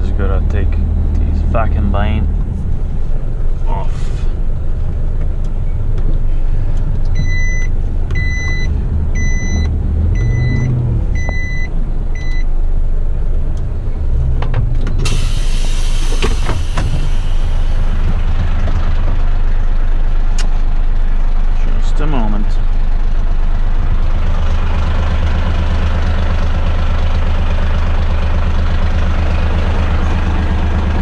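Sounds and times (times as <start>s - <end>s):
truck diesel engine running: 0.0s - 31.0s
reversing alarm beeping: 7.2s - 12.5s
loud air hiss: 15.1s - 18.0s.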